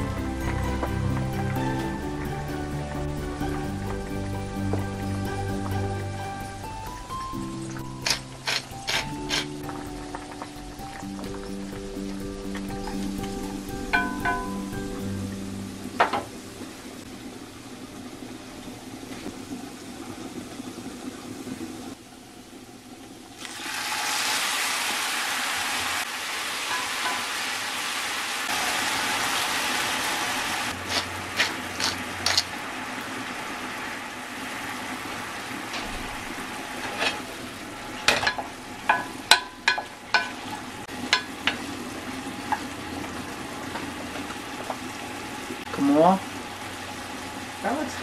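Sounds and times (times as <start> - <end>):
food sizzling in frying pan: 0.0 - 22.0, 23.3 - 48.0
utensil tapping pan: 12.1 - 14.9, 16.0 - 16.3, 38.0 - 41.7.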